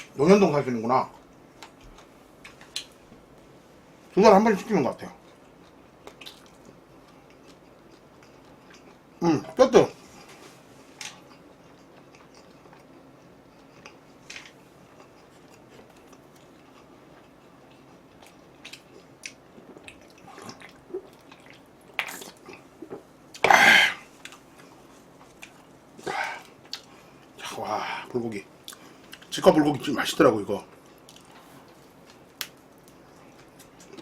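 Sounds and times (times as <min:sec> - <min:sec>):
chewing and biting food: 0:05.2 - 0:09.1, 0:11.1 - 0:23.4.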